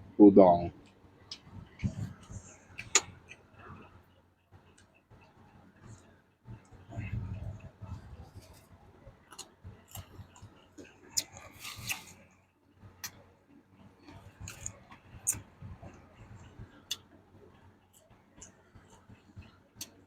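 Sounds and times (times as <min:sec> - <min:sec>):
person chewing and crunching food: 0:06.6 - 0:20.0.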